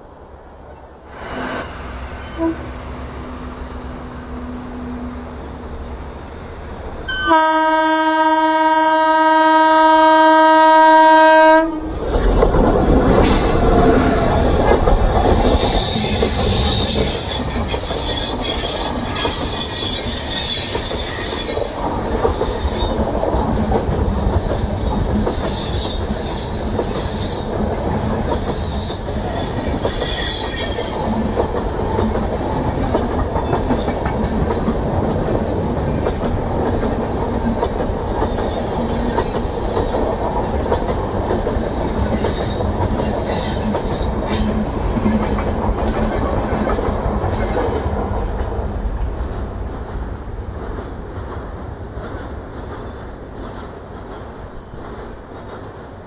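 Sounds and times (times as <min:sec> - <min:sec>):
train wheels squealing: 0:01.2 - 0:03.1, 0:04.3 - 0:07.3, 0:13.2 - 0:23.0, 0:24.1 - 0:31.6, 0:38.7 - 0:45.9
locomotive horn blast: 0:01.8 - 0:02.8, 0:07.1 - 0:11.9
train wheels clattering over rail joints: 0:11.9 - 0:49.1.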